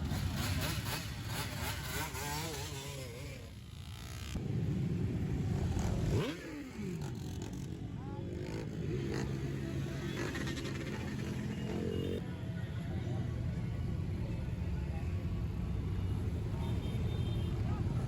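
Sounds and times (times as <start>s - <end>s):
motorcycles riding past: 0.0s - 12.2s.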